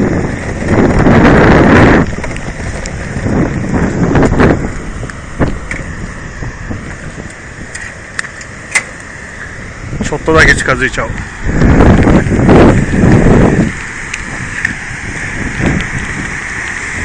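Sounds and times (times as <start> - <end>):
river rushing: 0.0 - 17.0
wind buffeting microphone: 0.0 - 17.0.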